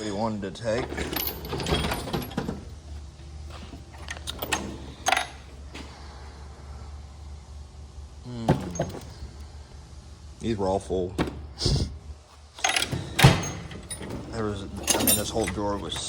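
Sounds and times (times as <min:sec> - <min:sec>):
metal tools clattering: 0:00.0 - 0:02.7, 0:04.0 - 0:05.4, 0:12.6 - 0:16.0
steady low hum: 0:00.0 - 0:16.0.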